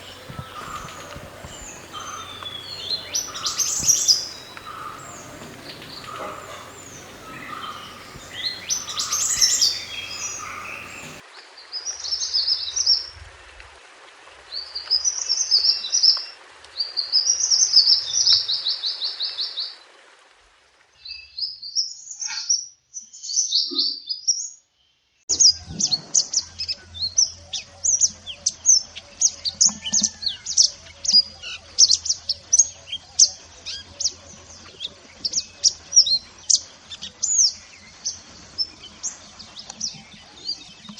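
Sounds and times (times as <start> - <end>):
bird chirping trills: 0.0 - 11.2
faint low hum: 0.0 - 11.2.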